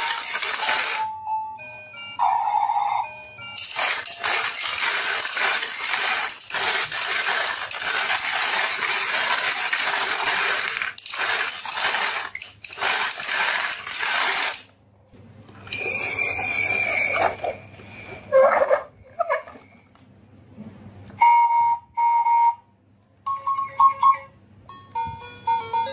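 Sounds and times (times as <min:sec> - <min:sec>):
marbles rattling down a marble run: 0:00.0 - 0:01.0, 0:03.6 - 0:14.7.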